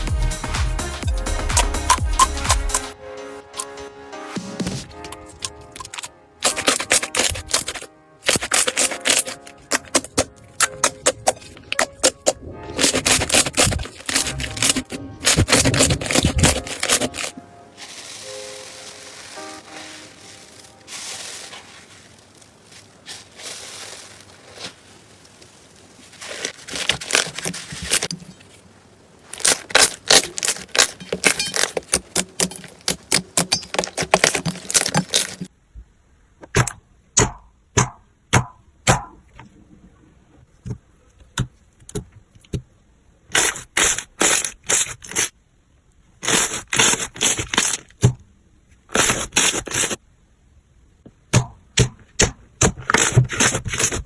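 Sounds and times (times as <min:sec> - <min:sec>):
slime crackling and popping: 0:05.2 - 0:28.1, 0:29.2 - 0:35.5.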